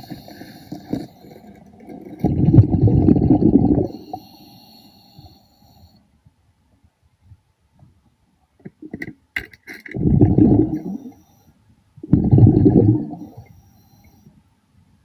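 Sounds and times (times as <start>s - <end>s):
exhaled bubbles underwater: 1.8s - 4.2s, 10.0s - 11.1s, 12.0s - 13.5s.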